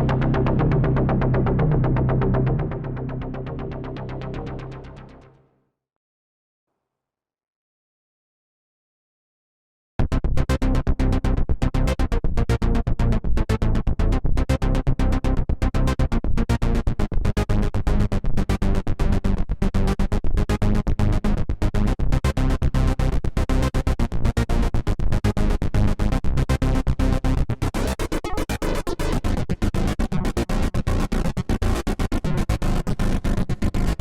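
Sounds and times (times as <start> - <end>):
heavy synth bass: 0.0 - 5.2
pulsing synthesizer sequence: 0.0 - 5.2.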